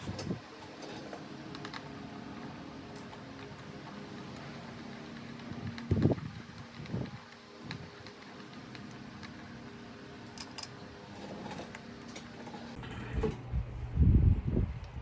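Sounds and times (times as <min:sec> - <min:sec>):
metal parts and tools clinking: 0:10.4 - 0:12.8.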